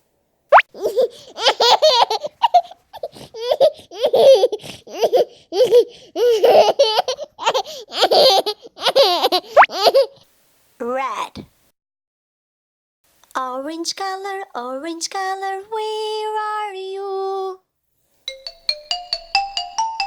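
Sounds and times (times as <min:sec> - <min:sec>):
high childlike laughter: 0:00.7 - 0:10.2.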